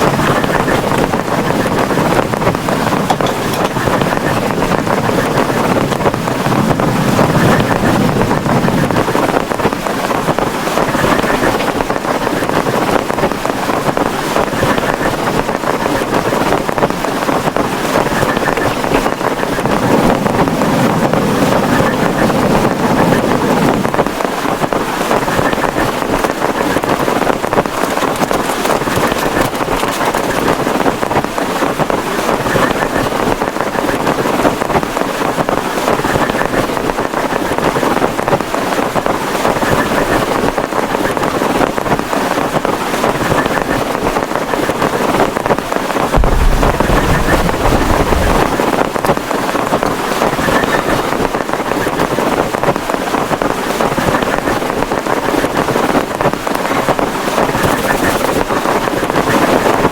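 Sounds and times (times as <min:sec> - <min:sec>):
heavy rain on plastic tarpaulin: 0:00.0 - 0:59.9
deep low rumble: 0:46.2 - 0:49.1.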